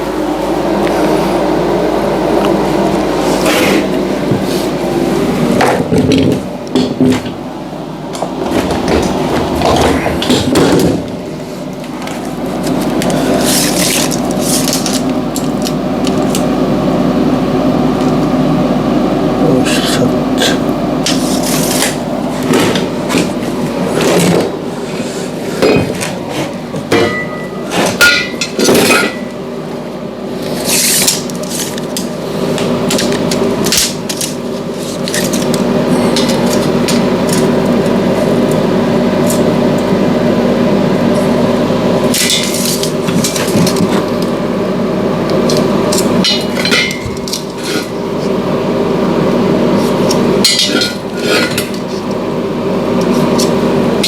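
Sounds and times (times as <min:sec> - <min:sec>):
steady mechanical hum: 0:00.0 - 0:54.0
hammer striking metal: 0:26.9 - 0:29.3, 0:50.4 - 0:51.7.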